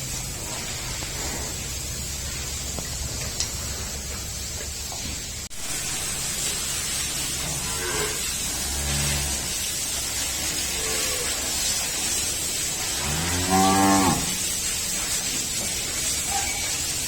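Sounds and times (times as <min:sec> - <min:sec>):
steady hiss: 0:00.0 - 0:17.0
cow mooing: 0:07.5 - 0:09.6, 0:10.6 - 0:11.5, 0:13.0 - 0:14.4.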